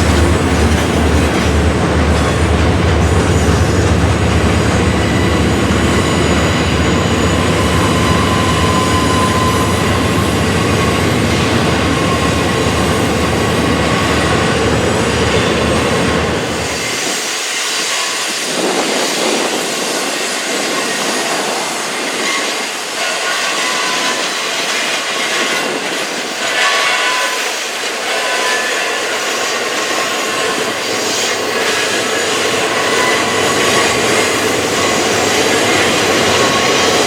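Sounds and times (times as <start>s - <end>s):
locomotive rumble: 0.0s - 17.0s
rail cars rattling past: 0.0s - 37.0s
wheels squealing: 5.0s - 14.2s, 28.2s - 37.0s.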